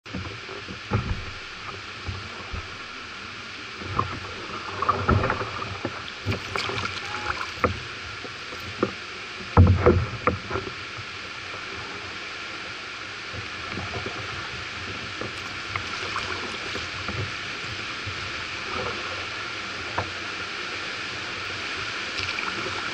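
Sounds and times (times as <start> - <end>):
splashes and knocks on canoe hull: 0.1 - 2.8, 3.8 - 10.8, 15.2 - 19.1
river water washing: 0.1 - 22.9.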